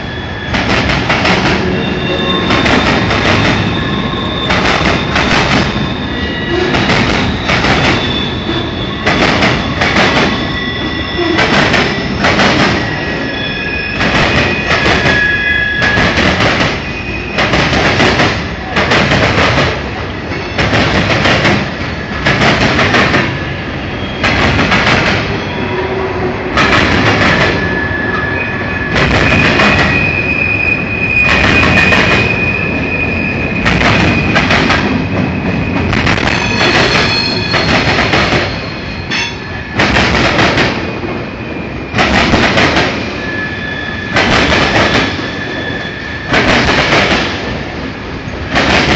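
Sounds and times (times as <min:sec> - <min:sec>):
high wheel squeal: 0:00.0 - 0:17.6, 0:23.4 - 0:24.4, 0:25.2 - 0:39.8, 0:42.9 - 0:46.5.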